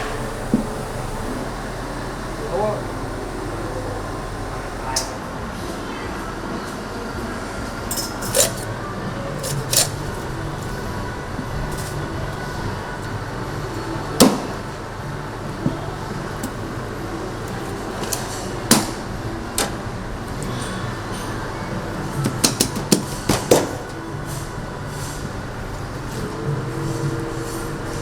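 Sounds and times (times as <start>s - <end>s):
steady low hum: 0.0s - 20.4s.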